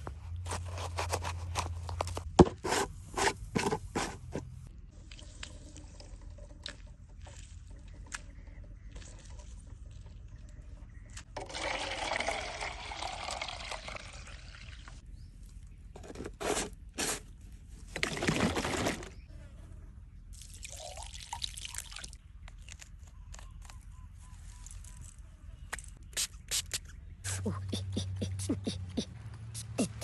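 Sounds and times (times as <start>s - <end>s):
liquid pouring and trickling: 11.3s - 15.0s, 20.4s - 22.2s.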